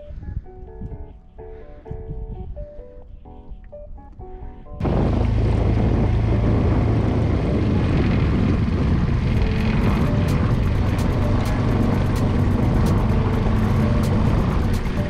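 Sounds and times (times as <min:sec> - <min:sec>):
music: 0:00.0 - 0:15.0
heavy noise: 0:04.8 - 0:15.0
outboard motor running: 0:04.8 - 0:15.0.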